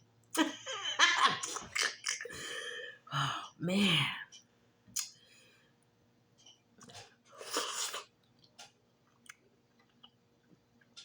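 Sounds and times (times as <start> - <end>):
close chewing and mouth sounds: 6.4 - 11.0.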